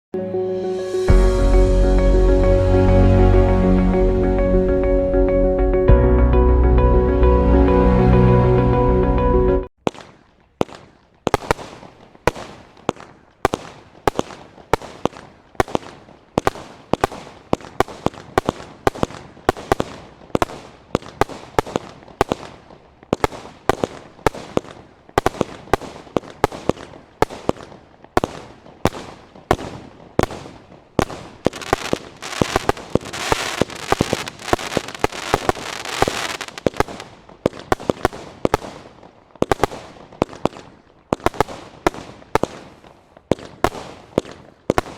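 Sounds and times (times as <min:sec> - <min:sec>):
firework bangs: 0:09.8 - 0:44.9
firework crackling hiss: 0:09.9 - 0:44.9.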